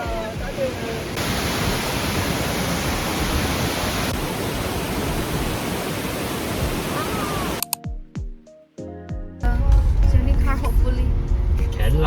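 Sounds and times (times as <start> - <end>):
falling water roaring: 0.0 - 7.6.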